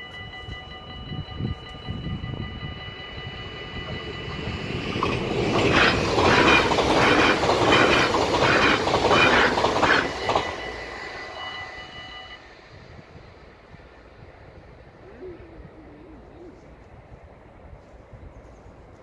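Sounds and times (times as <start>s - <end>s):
crossing warning bell ringing: 0.0s - 13.2s
train wheels rushing on rails: 0.0s - 15.0s.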